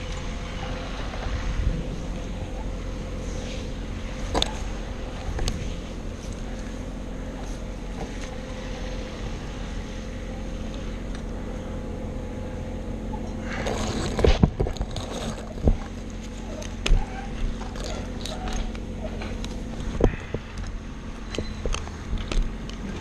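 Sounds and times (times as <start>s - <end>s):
low engine hum: 0.0s - 23.0s
scraping: 13.3s - 20.6s.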